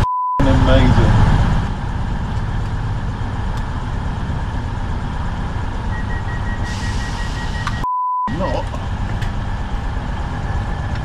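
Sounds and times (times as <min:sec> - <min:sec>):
train engine rumble: 0:00.0 - 0:11.0
high beeps: 0:05.9 - 0:08.4.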